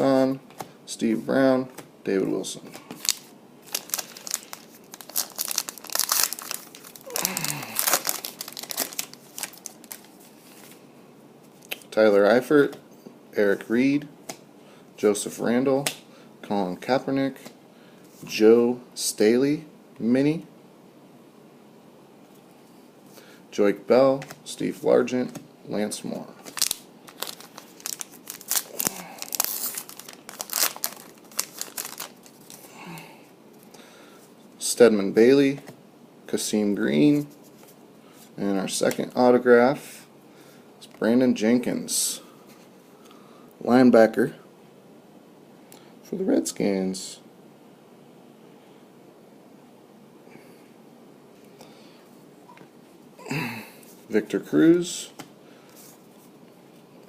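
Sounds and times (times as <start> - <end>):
foil wrappers crinkling and tearing: 2.9 - 10.7, 26.4 - 32.8.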